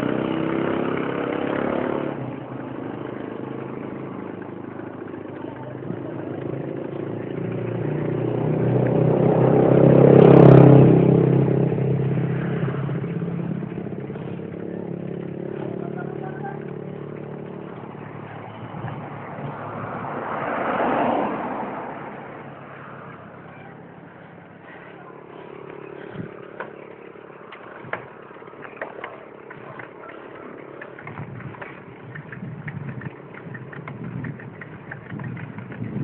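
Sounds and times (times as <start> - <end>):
vehicle engine passing by: 0.0 - 36.0.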